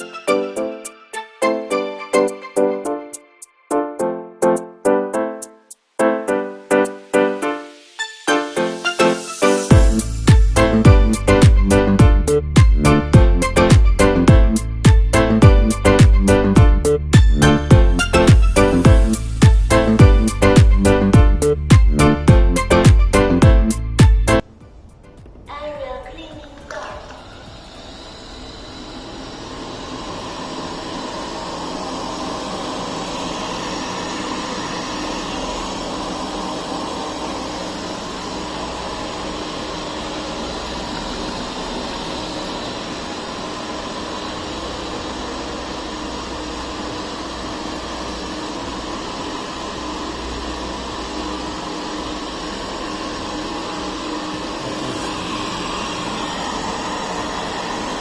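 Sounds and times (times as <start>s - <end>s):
robot vacuum motor whir: 26.3s - 58.0s.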